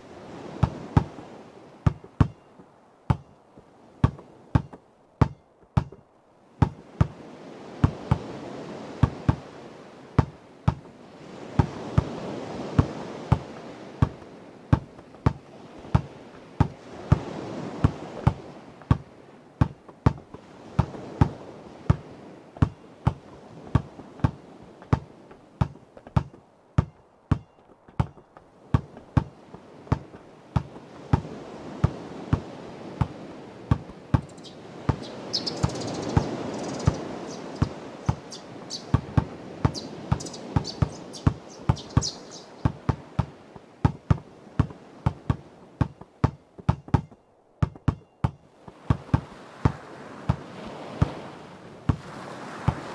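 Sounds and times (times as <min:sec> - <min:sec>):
ocean waves washing on shore: 0:00.0 - 0:52.9
basketball bouncing on hard surface: 0:01.8 - 0:02.5, 0:03.1 - 0:03.4, 0:04.0 - 0:06.0, 0:06.6 - 0:07.2, 0:07.8 - 0:08.2, 0:10.2 - 0:10.9, 0:12.8 - 0:22.0, 0:22.6 - 0:29.3, 0:29.9 - 0:36.4, 0:38.9 - 0:50.4.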